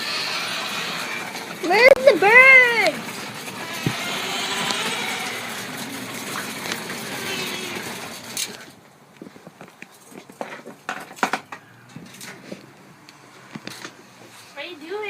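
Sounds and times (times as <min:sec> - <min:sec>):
birds chirping: 0:00.0 - 0:08.9, 0:11.3 - 0:12.2.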